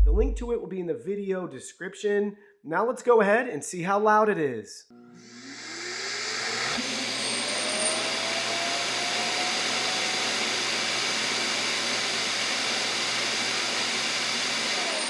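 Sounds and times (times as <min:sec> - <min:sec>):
vacuum motor whining: 0:05.1 - 0:15.0.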